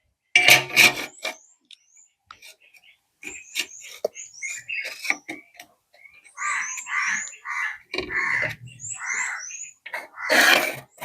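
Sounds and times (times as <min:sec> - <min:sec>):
repeated animal calls: 0:03.3 - 0:11.0.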